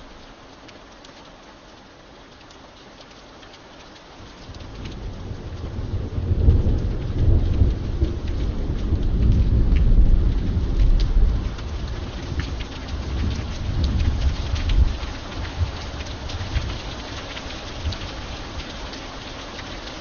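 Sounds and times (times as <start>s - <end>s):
steady rain: 0.0s - 20.0s
rolling thunder: 4.2s - 16.8s.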